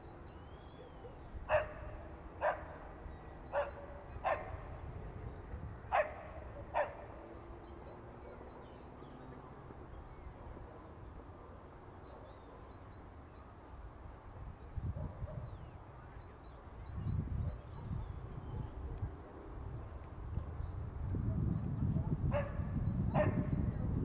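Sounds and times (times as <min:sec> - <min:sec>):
dog barking: 0:00.9 - 0:02.8, 0:03.5 - 0:04.7, 0:05.9 - 0:07.2, 0:22.3 - 0:23.7.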